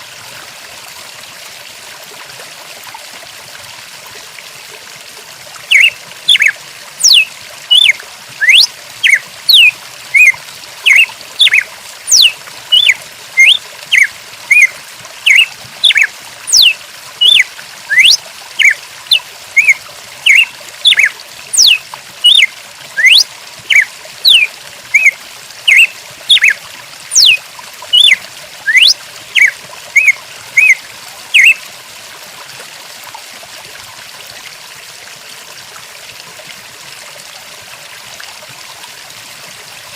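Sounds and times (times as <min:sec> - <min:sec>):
high-pitched chirps: 0:05.7 - 0:14.7, 0:15.3 - 0:18.8, 0:19.6 - 0:25.1, 0:25.7 - 0:27.4, 0:28.0 - 0:30.8, 0:31.4 - 0:31.6.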